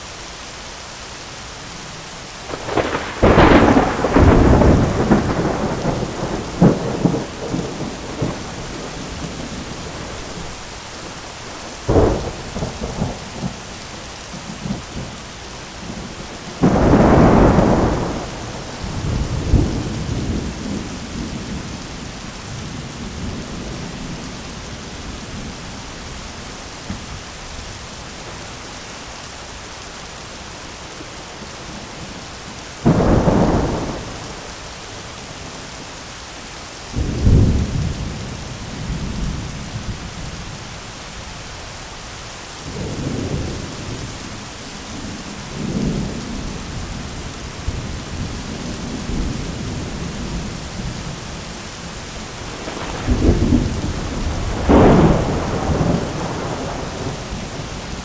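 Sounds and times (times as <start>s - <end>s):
steady rain: 0.0s - 58.0s
thunder rolling: 2.4s - 13.6s, 15.8s - 21.8s, 32.8s - 34.5s, 52.4s - 58.0s
sharp thunder crack: 2.5s - 10.5s, 16.6s - 21.4s, 52.4s - 58.0s.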